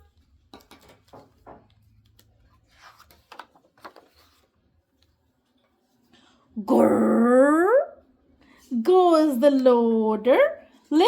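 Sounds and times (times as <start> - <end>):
paper rustling: 0.0 - 6.1.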